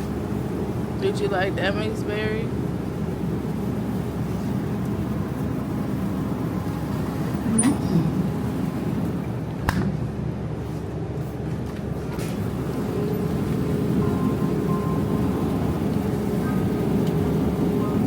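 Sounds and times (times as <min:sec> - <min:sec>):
supermarket background noise: 0:00.0 - 0:18.0
faint murmur of shoppers: 0:06.8 - 0:09.2, 0:12.4 - 0:18.0.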